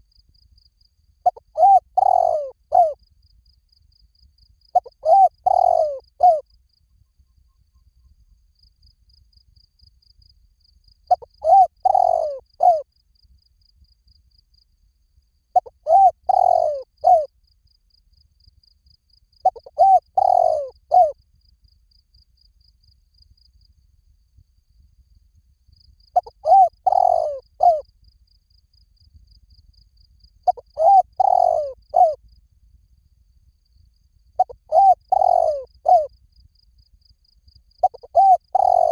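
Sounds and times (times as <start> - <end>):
dove cooing: 1.3 - 3.0, 4.8 - 6.4, 11.1 - 12.8, 15.6 - 17.3, 19.4 - 21.2, 26.2 - 27.8, 30.5 - 32.2, 34.4 - 36.1, 37.8 - 38.9.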